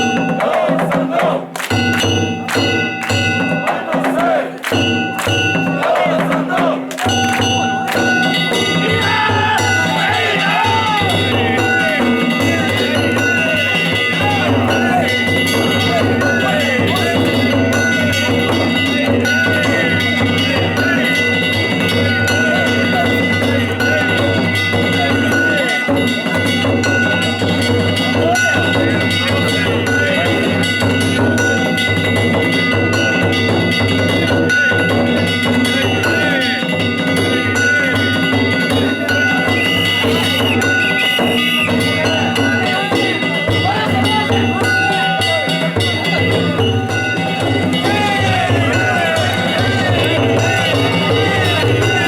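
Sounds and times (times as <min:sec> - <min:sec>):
drum beat: 0:00.0 - 0:52.0
hand gongs ringing: 0:01.6 - 0:52.0
wavering voices or flute: 0:03.6 - 0:27.0, 0:35.7 - 0:52.0.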